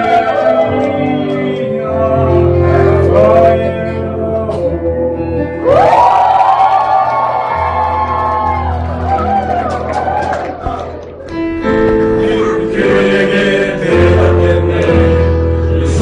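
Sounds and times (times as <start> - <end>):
men singing a praise song: 0.0 - 5.5, 12.0 - 16.0.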